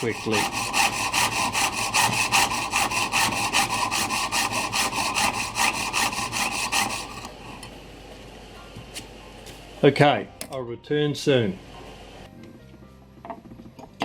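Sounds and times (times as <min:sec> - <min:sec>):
saw cutting brass plate: 0:00.0 - 0:07.6.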